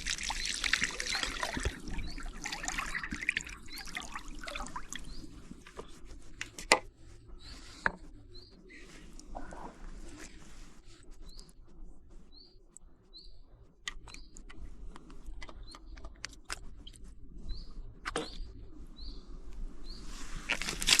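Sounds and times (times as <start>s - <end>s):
small bird chirping: 0.1s - 5.5s, 12.3s - 14.6s.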